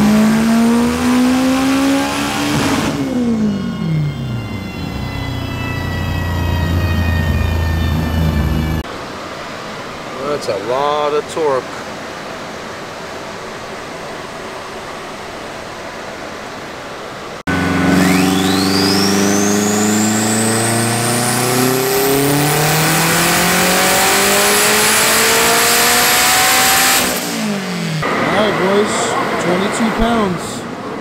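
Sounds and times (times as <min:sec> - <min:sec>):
car engine revving: 0:00.0 - 0:08.8, 0:17.5 - 0:31.0
turbo whistle: 0:02.6 - 0:08.8, 0:17.7 - 0:24.1.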